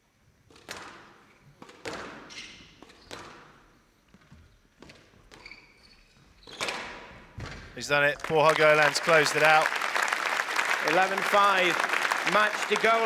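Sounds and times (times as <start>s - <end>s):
shoes squeaking on floor: 1.9s - 7.8s.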